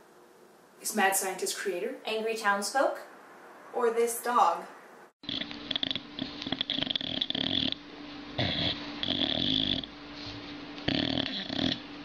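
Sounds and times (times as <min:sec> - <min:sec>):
dog growling: 0:05.2 - 0:07.8, 0:08.4 - 0:10.0, 0:10.8 - 0:11.9.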